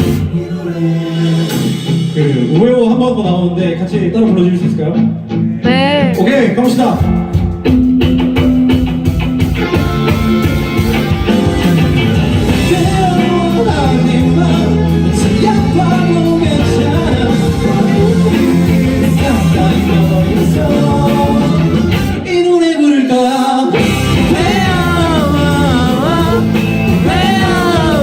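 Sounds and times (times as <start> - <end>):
live rock band playing: 0.0 - 0.4, 5.6 - 22.4, 23.7 - 28.0
person singing: 5.6 - 6.6, 24.3 - 28.0.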